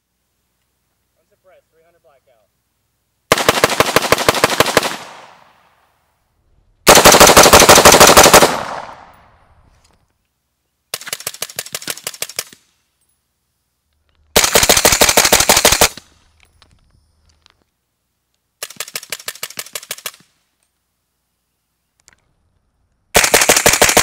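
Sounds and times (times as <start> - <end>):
rifle shots firing rapidly: 3.3 - 5.4, 6.9 - 9.1, 14.4 - 16.0, 23.2 - 24.0.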